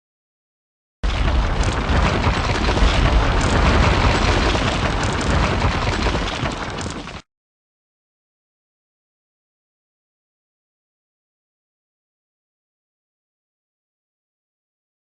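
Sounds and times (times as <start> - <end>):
explosion-like crashing and rumbling: 1.0 - 7.2.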